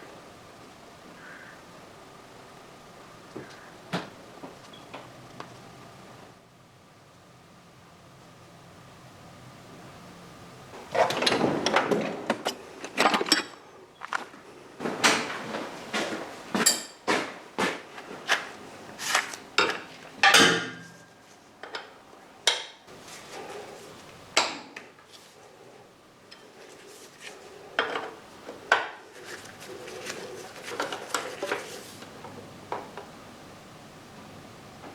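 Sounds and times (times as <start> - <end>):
metal tools clanking: 10.9 - 14.2, 16.6 - 17.2.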